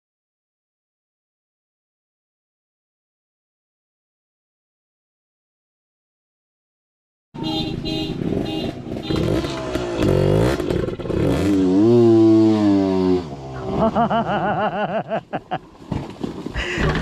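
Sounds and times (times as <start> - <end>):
dirt bike engine revving: 7.8 - 14.4.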